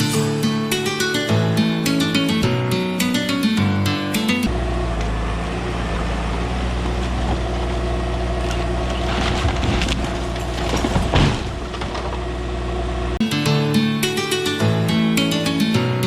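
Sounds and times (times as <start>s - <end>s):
excavator diesel engine: 0.0s - 16.0s
cracking crunching noise: 8.3s - 12.4s.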